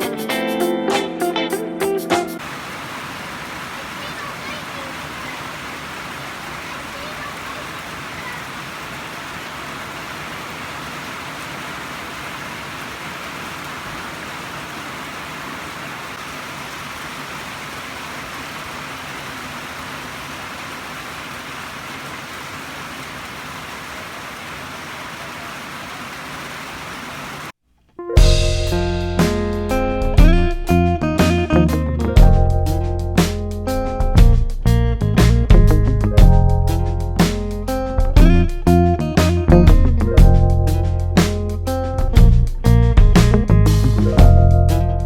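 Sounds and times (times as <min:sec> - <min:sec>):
guitar music: 0:00.0 - 0:02.4, 0:28.0 - 0:45.0
steady hiss: 0:02.4 - 0:27.6.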